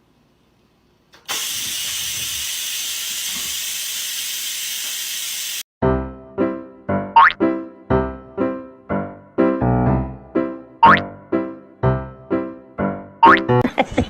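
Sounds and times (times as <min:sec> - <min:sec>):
steady hiss: 0:01.2 - 0:05.6
keyboard music: 0:05.8 - 0:13.7.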